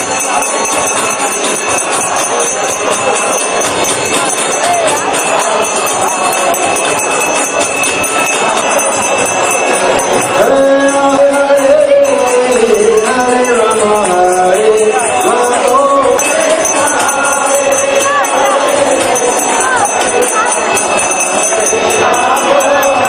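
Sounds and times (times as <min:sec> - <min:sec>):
jingling hand cymbals and bells: 0:00.0 - 0:23.0
person singing: 0:08.1 - 0:23.0.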